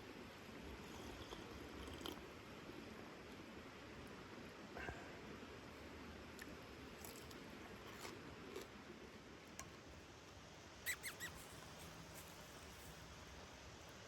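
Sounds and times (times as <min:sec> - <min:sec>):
high-pitched falling chirps: 0:10.9 - 0:11.4.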